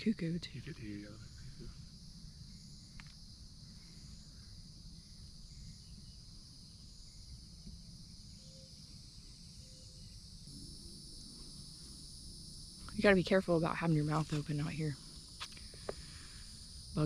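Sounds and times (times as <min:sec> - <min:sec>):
insect chorus drone: 0:00.0 - 0:17.0.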